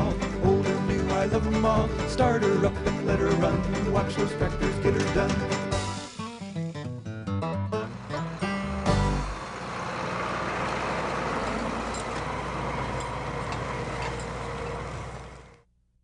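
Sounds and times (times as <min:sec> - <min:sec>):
country song: 0:00.0 - 0:09.4
tractor engine running: 0:00.0 - 0:15.7.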